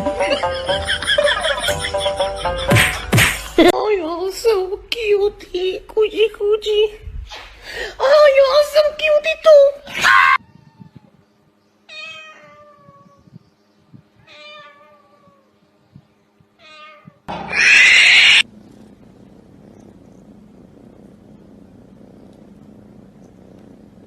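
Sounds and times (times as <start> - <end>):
cat meowing: 10.2 - 11.2, 11.9 - 13.3, 14.2 - 15.5, 16.6 - 18.5.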